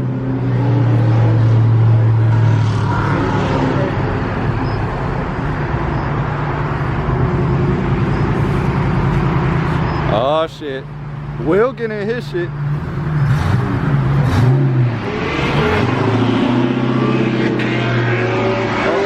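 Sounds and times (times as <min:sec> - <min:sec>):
car engine idling: 0:03.9 - 0:14.5.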